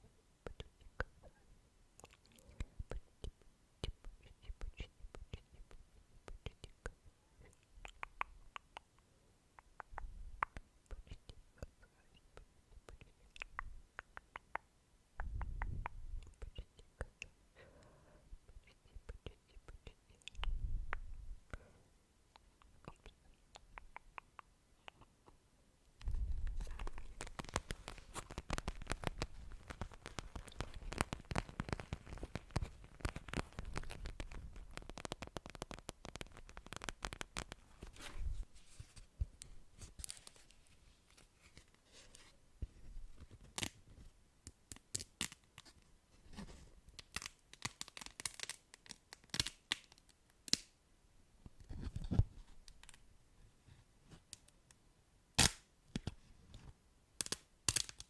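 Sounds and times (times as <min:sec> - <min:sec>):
crackling scratching clicks: 0:26.0 - 0:38.3.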